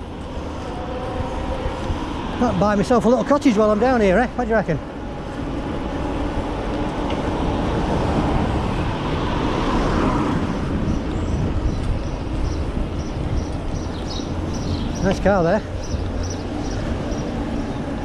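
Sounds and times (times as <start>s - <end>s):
car passing: 0.0s - 18.0s
wind noise: 0.0s - 18.0s.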